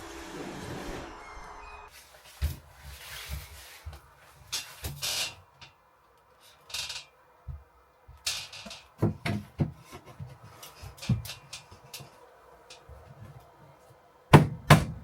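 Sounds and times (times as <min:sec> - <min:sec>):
scraping and rustling: 0:01.9 - 0:05.5.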